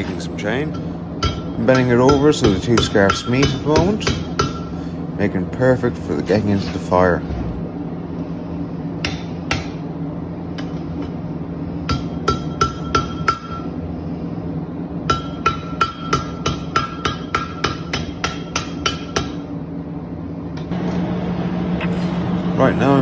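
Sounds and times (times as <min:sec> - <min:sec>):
hammer striking metal on anvil: 0:01.2 - 0:04.7, 0:09.0 - 0:09.8, 0:11.9 - 0:13.7, 0:15.1 - 0:19.4
steady low drone: 0:07.0 - 0:08.5.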